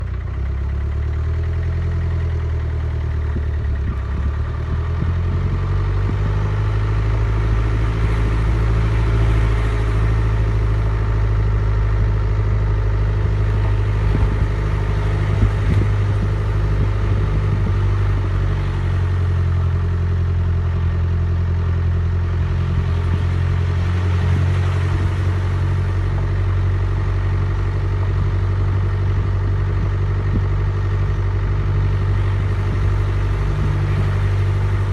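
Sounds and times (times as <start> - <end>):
vehicle engine humming: 0.0 - 34.9.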